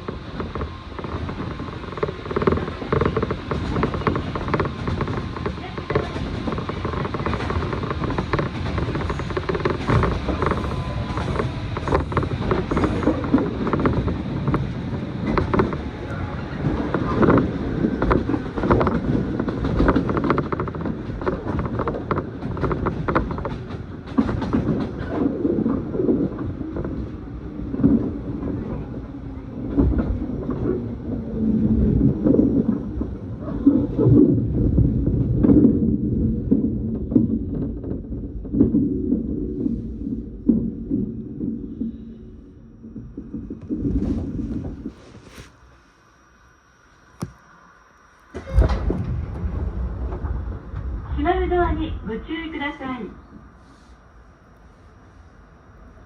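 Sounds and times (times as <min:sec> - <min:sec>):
train wheels rumbling on rail: 0:00.0 - 0:45.6, 0:48.4 - 0:56.0.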